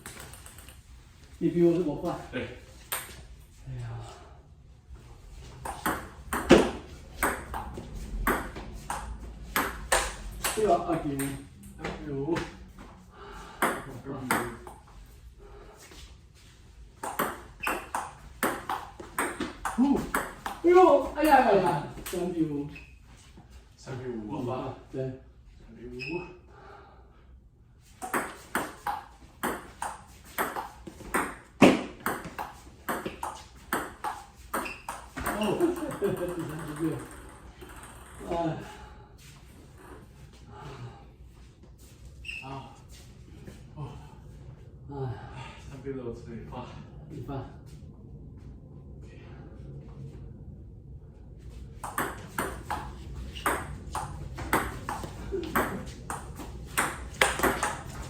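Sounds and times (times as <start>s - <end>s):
ping-pong ball clicks: 0.0s - 0.8s.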